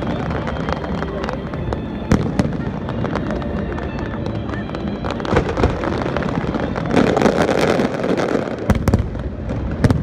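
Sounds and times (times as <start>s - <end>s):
fireworks crackling: 0.0s - 10.0s
fireworks going off: 0.0s - 10.0s.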